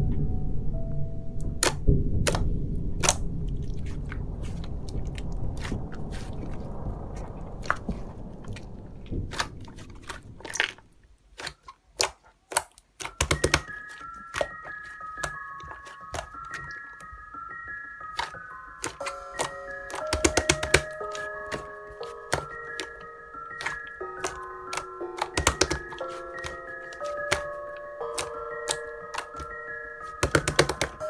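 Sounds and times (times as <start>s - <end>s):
chiming background tune: 13.1s - 31.0s.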